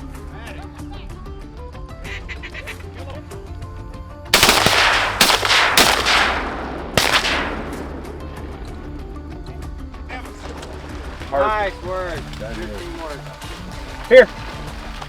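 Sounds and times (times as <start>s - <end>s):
shotgun blasts echoing: 4.4s - 9.9s.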